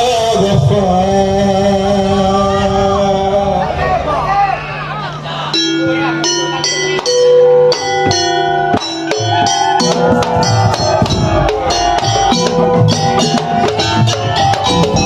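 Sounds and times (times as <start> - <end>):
percussion ensemble playing: 5.5 - 15.0
struck ringing notes: 5.5 - 15.0
low drum beats: 5.6 - 15.0.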